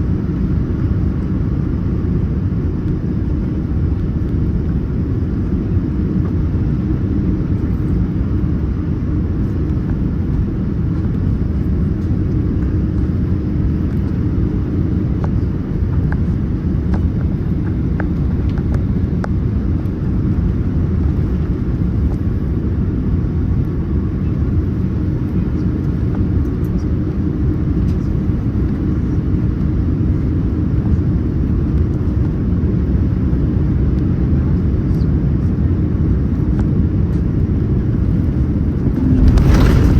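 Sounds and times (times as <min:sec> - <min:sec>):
aircraft cabin engine rumble: 0:00.0 - 0:39.9.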